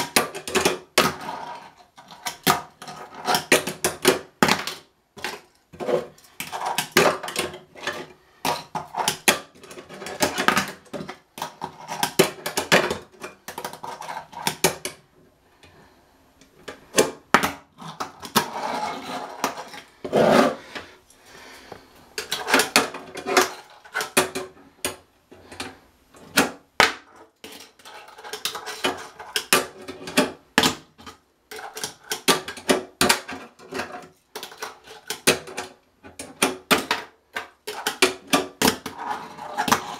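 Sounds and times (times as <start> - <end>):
fingerboard scraping: 18.3 - 20.9.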